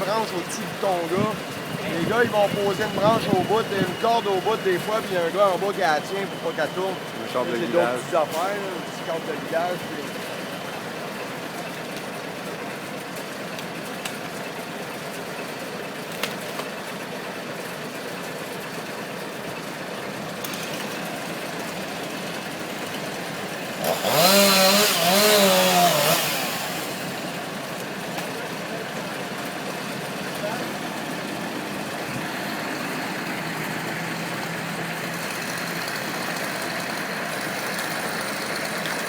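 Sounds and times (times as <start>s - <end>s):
chainsaw revving: 0.0s - 11.4s, 20.3s - 39.0s.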